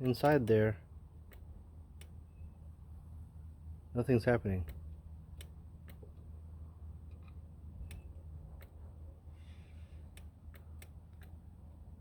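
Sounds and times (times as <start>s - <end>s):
compressor relay clicking: 0.0s - 2.2s, 4.6s - 6.3s, 7.0s - 8.8s, 10.0s - 11.6s
low steady hum: 0.0s - 12.0s.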